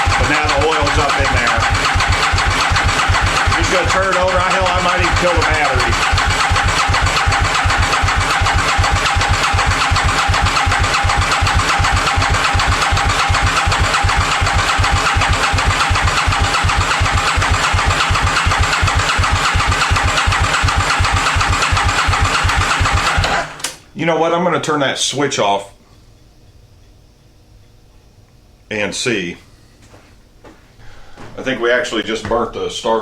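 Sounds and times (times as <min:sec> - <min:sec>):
motorcycle engine cranking: 0:00.0 - 0:23.8
starter motor whine: 0:00.0 - 0:23.9.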